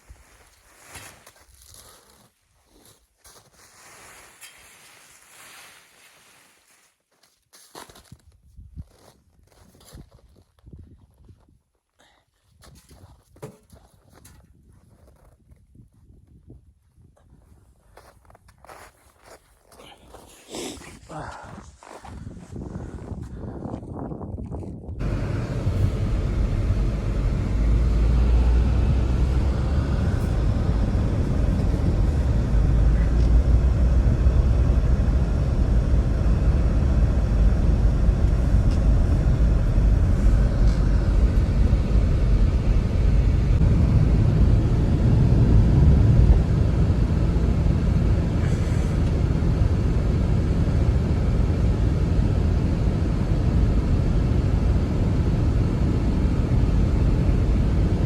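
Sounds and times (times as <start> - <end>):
blizzard wind buffeting microphone: 20.1 - 58.0.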